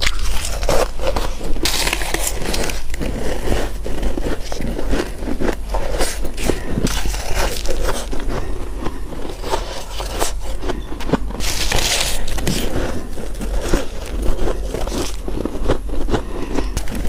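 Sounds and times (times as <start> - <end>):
crunching frost: 0.0 - 17.0.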